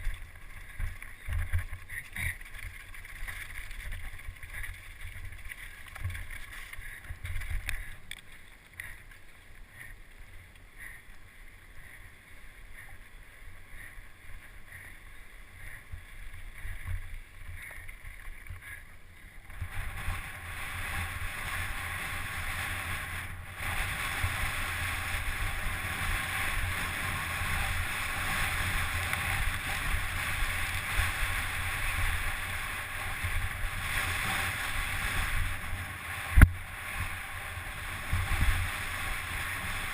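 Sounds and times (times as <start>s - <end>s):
wind rushing over microphone: 19.4s - 39.9s.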